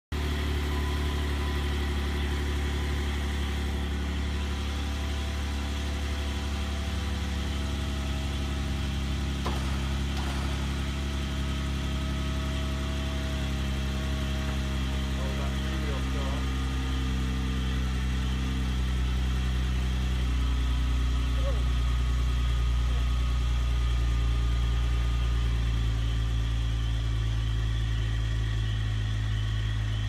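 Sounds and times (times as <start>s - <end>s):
car engine idling: 0.1s - 30.0s.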